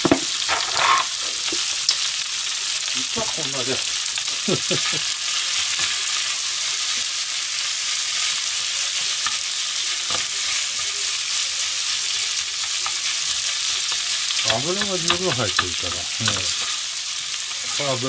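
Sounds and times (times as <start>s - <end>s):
food sizzling in a frying pan: 0.0s - 18.0s
turner tapping a pan: 12.4s - 17.9s.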